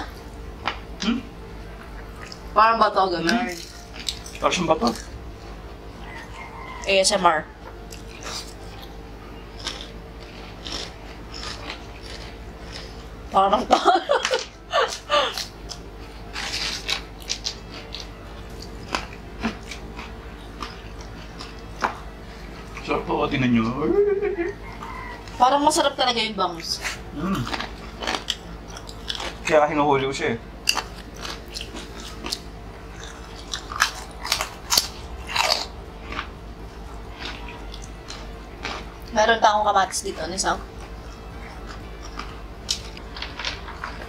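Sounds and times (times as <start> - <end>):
crunchy crackers being chewed: 1.8 - 2.5, 3.2 - 5.2, 7.9 - 13.3, 14.1 - 22.9, 26.6 - 29.6, 30.6 - 39.2, 40.7 - 44.0
person laughing: 13.6 - 15.5, 23.8 - 24.6.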